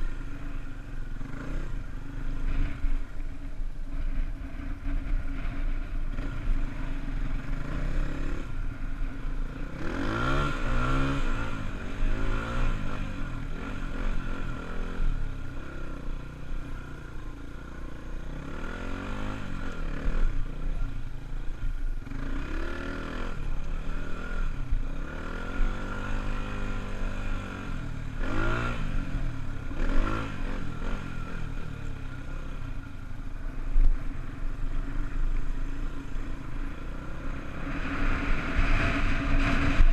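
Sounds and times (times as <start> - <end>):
dirt bike engine revving: 0.0 - 3.0, 9.4 - 16.2, 22.0 - 32.4, 33.4 - 39.9.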